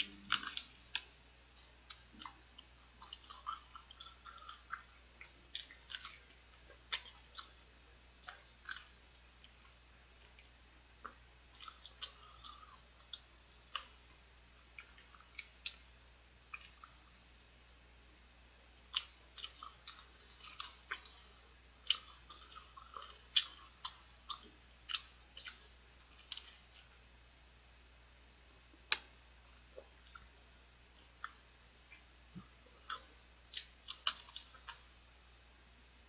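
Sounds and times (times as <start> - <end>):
person biting and chewing: 0.0 - 7.6, 32.8 - 34.9.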